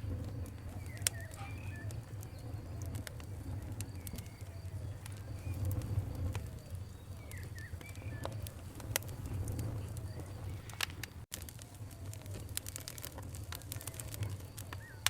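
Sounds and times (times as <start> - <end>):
campfire crackling and popping: 0.0 - 15.0
bird calls: 0.6 - 8.5, 14.2 - 15.0.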